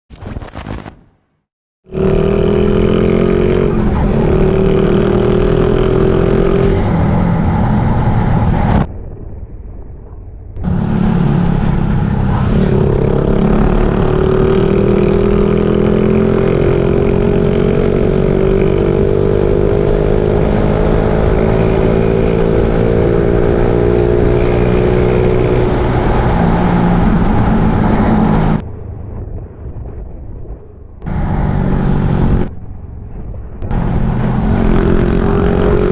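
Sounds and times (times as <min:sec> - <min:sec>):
motorcycle engine running: 0:10.6 - 0:28.6.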